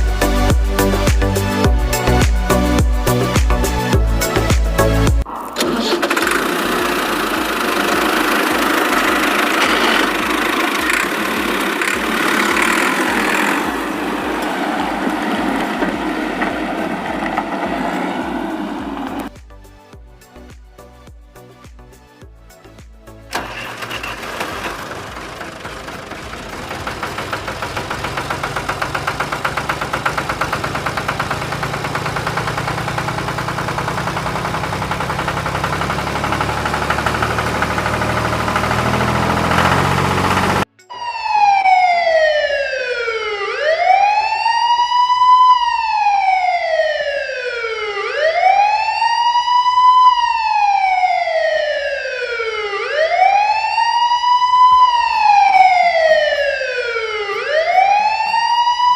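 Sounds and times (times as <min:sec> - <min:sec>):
motor pulsing: 0:05.6 - 0:14.0
wailing siren: 0:07.0 - 0:19.3, 0:25.7 - 0:58.9.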